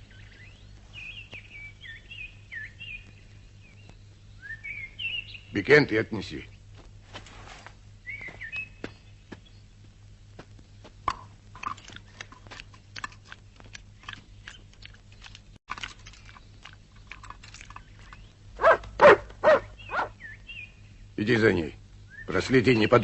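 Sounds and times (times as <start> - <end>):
dog chewing food: 11.5 - 20.1.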